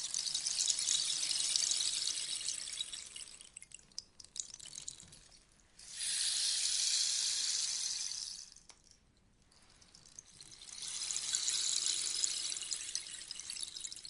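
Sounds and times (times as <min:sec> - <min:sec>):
rainstick grains trickling: 0:00.0 - 0:08.8, 0:09.5 - 0:14.0
rainstick cascade hiss: 0:05.8 - 0:08.6.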